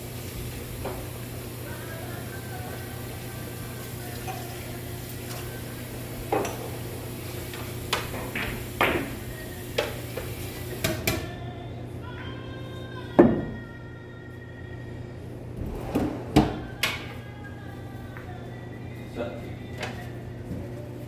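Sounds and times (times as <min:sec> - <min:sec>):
billiard balls clacking: 0:07.9 - 0:10.0
steady low hum: 0:13.8 - 0:19.6.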